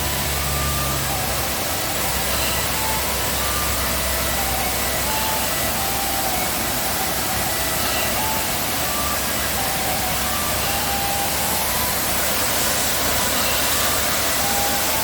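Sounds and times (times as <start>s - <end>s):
high whistled notes: 0.0s - 15.0s
waterfall rushing: 0.0s - 15.0s.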